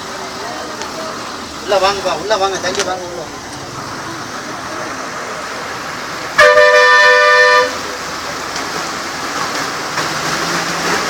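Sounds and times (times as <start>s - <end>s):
traffic noise: 0.0s - 11.0s
two-note vehicle horn: 6.4s - 7.8s.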